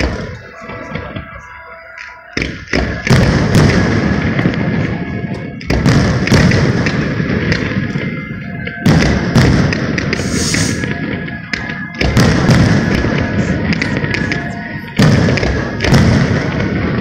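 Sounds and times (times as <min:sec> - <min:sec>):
firework shells bursting: 0:08.8 - 0:16.8.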